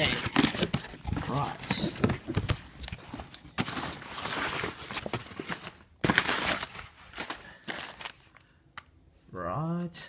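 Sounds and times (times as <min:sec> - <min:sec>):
packaging crinkling and tearing: 0:00.0 - 0:02.0, 0:02.7 - 0:08.5.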